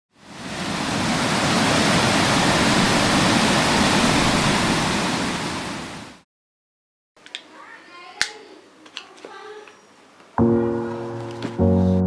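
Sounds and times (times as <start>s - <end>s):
waterfall rushing: 0.3s - 5.6s.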